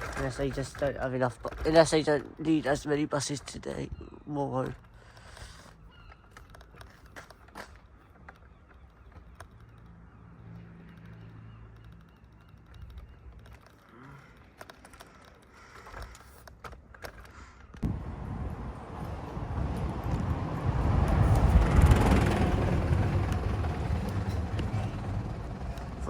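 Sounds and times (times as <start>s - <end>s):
light clicks: 4.6s - 17.9s
vehicle engine idling: 17.9s - 26.0s.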